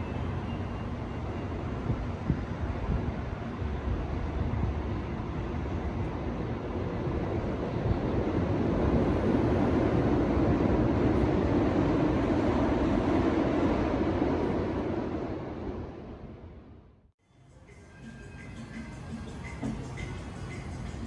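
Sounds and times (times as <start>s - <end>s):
car tyre and wind road noise: 0.8s - 16.8s.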